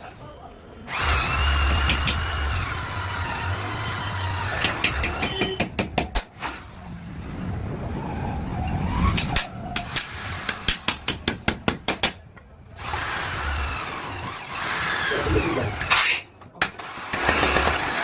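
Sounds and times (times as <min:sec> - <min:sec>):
power tool motor running: 0:00.9 - 0:05.2, 0:12.8 - 0:16.0, 0:16.8 - 0:18.0.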